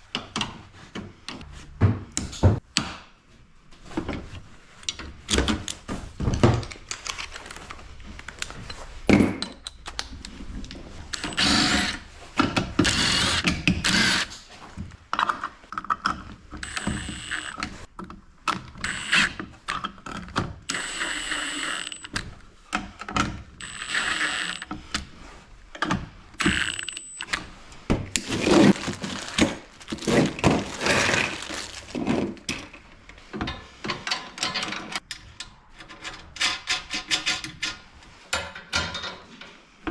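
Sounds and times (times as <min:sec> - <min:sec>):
hand tools ratcheting and clanking: 0:11.1 - 0:14.4, 0:28.2 - 0:32.8, 0:33.4 - 0:37.8.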